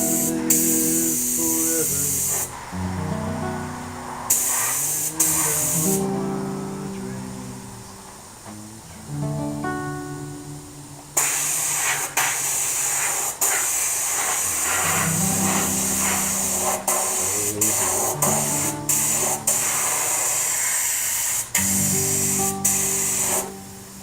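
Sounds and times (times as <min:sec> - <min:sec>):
spray paint hissing: 0:00.0 - 0:02.8, 0:04.2 - 0:06.2, 0:11.2 - 0:23.7.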